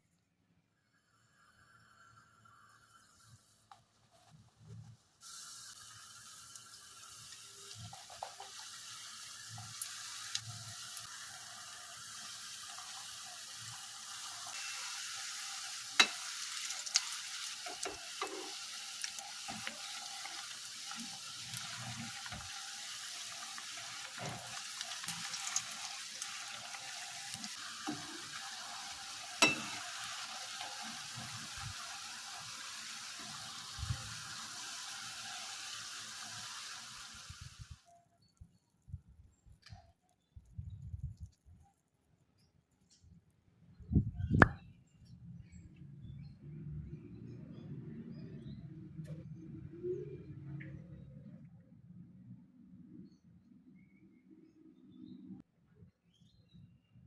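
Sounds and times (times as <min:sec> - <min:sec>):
batter sizzling in a pan: 0:01.0 - 0:37.8.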